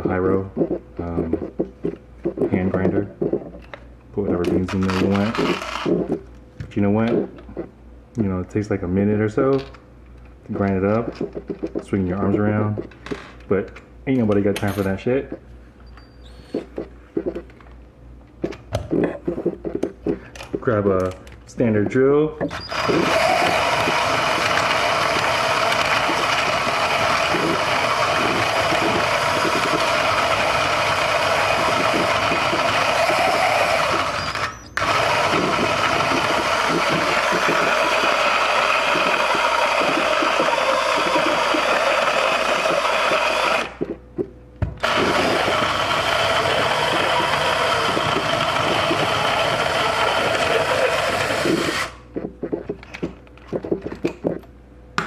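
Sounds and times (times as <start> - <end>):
coffee grinder grinding beans: 4.6 - 6.2, 22.6 - 43.8, 44.8 - 52.0
power drill motor whine: 4.8 - 6.0, 22.5 - 43.8, 44.8 - 52.0.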